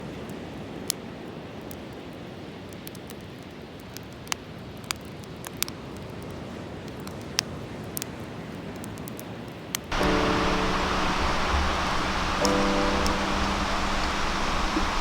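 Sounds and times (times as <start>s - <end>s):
wood fire crackling: 9.9s - 15.0s.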